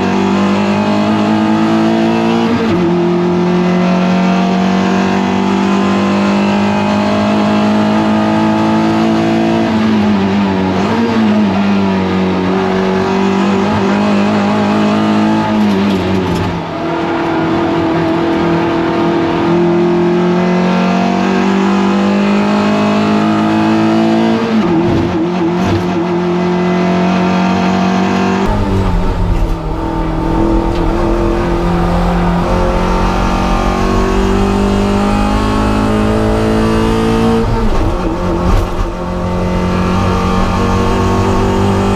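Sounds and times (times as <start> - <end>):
race car engine at high revs: 0.0 - 41.9
deeper rumbly engine note: 28.5 - 41.9.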